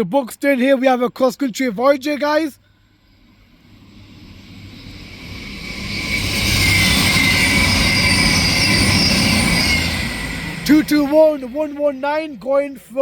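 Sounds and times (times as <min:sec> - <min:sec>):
train passing: 0:02.7 - 0:13.0
high whining tones: 0:02.8 - 0:13.0.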